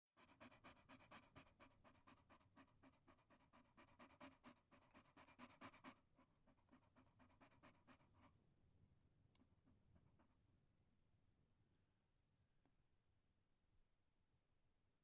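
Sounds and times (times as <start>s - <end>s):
small dog panting: 0.2s - 8.4s.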